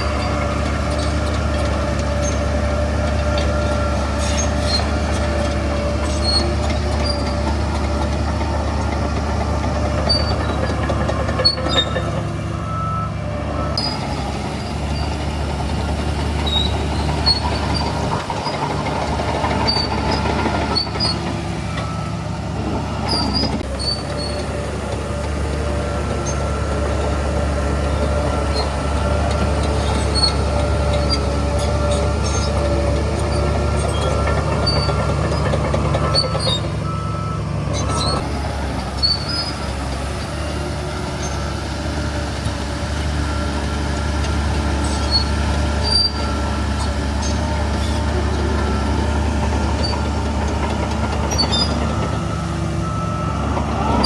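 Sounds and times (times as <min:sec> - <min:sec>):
bulldozer diesel engine running: 0:00.0 - 0:54.0
high squeaks and clicks: 0:16.4 - 0:22.0.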